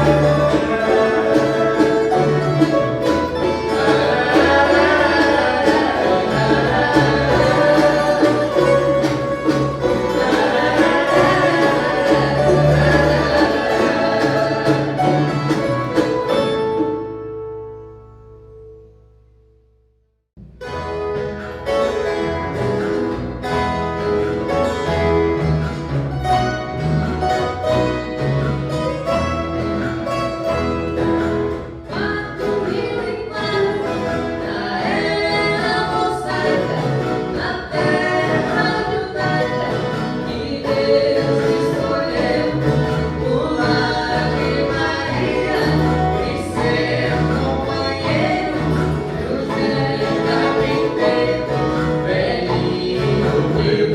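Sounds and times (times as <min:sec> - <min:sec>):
group of voices singing: 0:00.0 - 0:16.3, 0:31.9 - 0:53.9
strummed violas: 0:00.0 - 0:17.8, 0:20.4 - 0:53.9.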